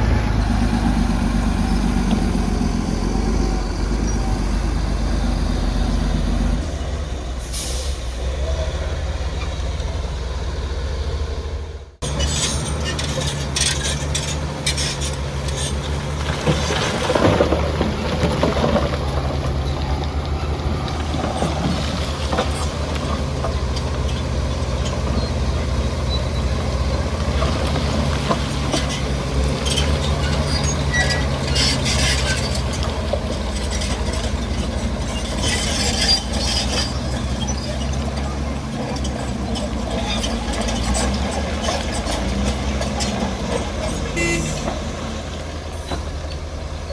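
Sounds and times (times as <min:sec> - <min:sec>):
bulldozer diesel engine running: 0:00.0 - 0:46.9
clanks and scrapes of rock: 0:12.0 - 0:25.4, 0:27.2 - 0:45.0.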